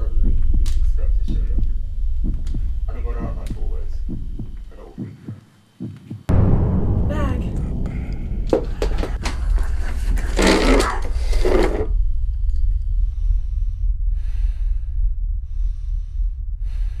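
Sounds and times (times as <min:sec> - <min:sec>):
deep low rumble: 0:00.0 - 0:04.7, 0:06.3 - 0:17.0
slow heavy breaths: 0:12.8 - 0:17.0.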